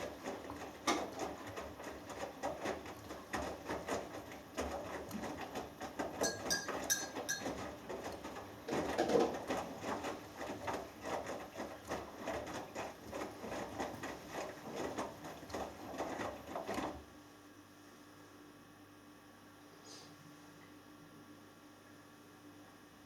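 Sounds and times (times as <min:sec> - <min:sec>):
washing machine drum turning: 0:00.0 - 0:17.0
laundry and water sloshing: 0:00.0 - 0:17.1.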